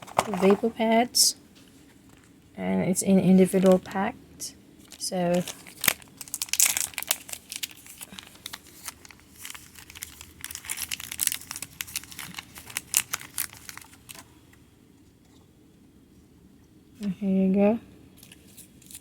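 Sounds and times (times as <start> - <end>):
wrapper crinkling and tearing: 4.8 - 14.3, 18.2 - 19.0.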